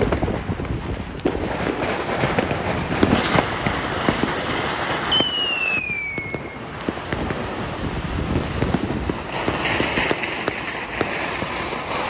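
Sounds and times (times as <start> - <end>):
fireworks popping and banging: 0.0 - 12.0
falling firework whistle: 4.1 - 6.8.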